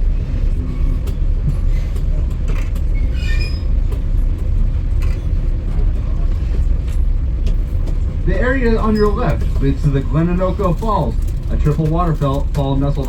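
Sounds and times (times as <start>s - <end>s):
train rumbling along track: 0.0s - 13.0s
faint short squeaks: 2.6s - 3.8s.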